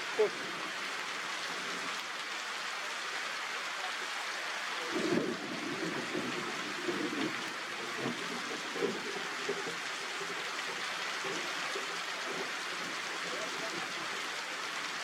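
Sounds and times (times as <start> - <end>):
steady rainfall: 0.0 - 15.0.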